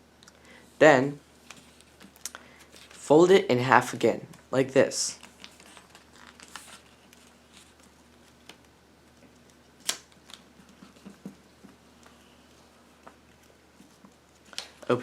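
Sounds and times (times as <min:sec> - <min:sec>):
paper rustling: 0:05.2 - 0:11.3.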